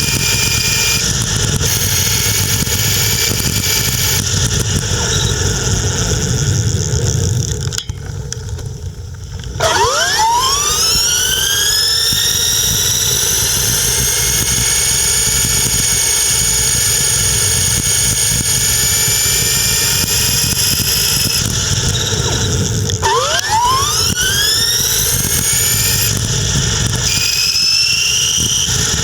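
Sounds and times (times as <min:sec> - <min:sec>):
electric motor whining: 0:00.0 - 0:06.7, 0:09.6 - 0:29.0.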